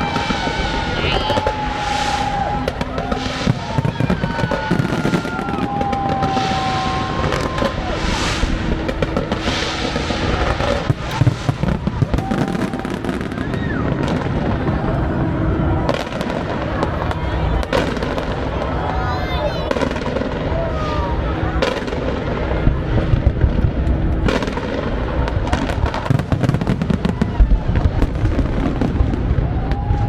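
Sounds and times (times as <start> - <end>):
fireworks whistles: 0.0 - 14.6
fireworks bangs and crackling: 0.0 - 30.0.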